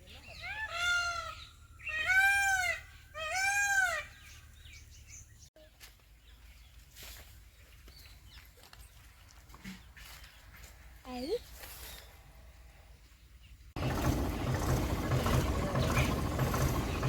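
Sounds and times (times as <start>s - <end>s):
bird calling: 0.0s - 5.5s.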